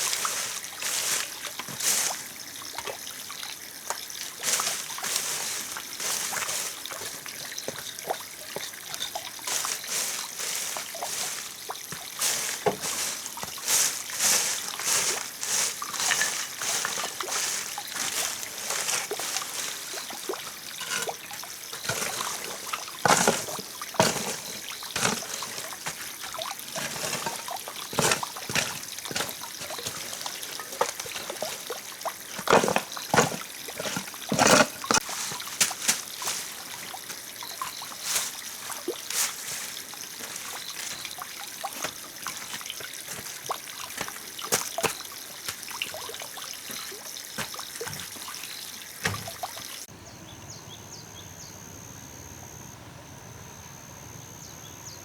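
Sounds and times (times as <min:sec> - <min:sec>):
water splashes: 0:00.0 - 0:49.9
water trickling: 0:00.0 - 0:49.9
small knocks: 0:08.6 - 0:38.4, 0:49.0 - 0:49.6.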